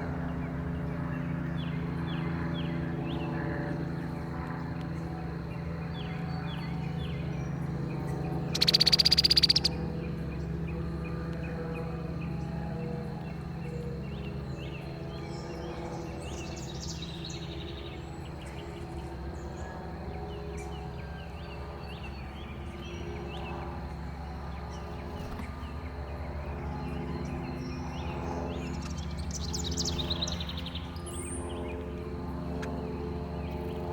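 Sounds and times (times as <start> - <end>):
birds chirping: 0.0 - 33.9
steady low hum: 0.0 - 33.9
bird trill: 8.4 - 10.0.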